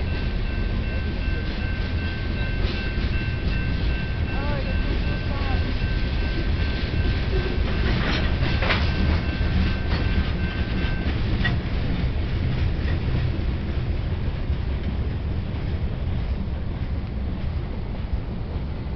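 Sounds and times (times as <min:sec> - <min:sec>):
low rumble of freight train: 0:00.0 - 0:18.9
wheels clacking over rail joints: 0:00.4 - 0:13.8.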